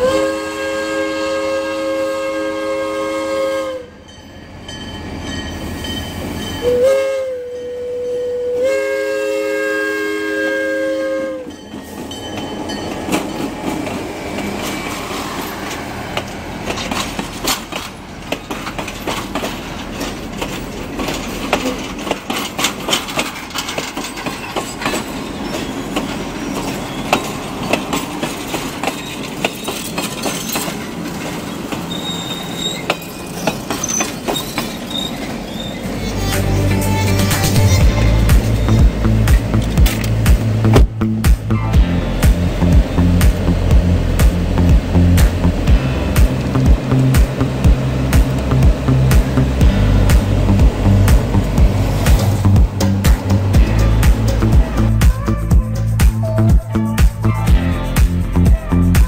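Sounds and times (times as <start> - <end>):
locomotive air horn: 0.0 - 4.0, 6.6 - 11.6, 35.8 - 39.6, 53.5 - 56.4
train wheels clicking over rail joints: 11.5 - 36.2, 37.3 - 41.6, 42.2 - 56.5.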